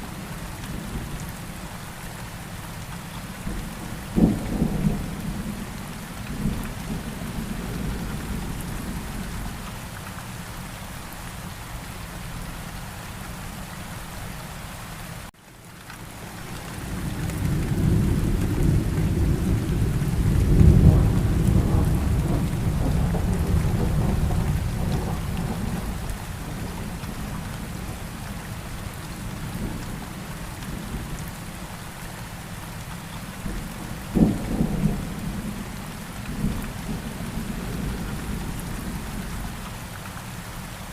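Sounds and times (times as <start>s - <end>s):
steady rain: 0.0s - 40.9s
thunder rolling: 17.1s - 27.0s.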